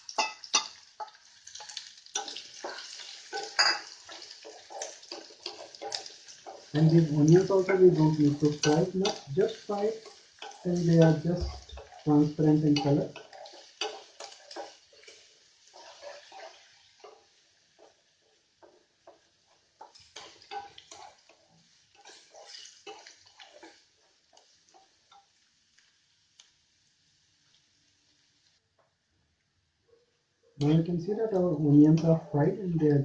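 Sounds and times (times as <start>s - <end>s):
onions sizzling in a pan: 0.0s - 33.0s
spatula scraping a pan: 0.1s - 25.9s.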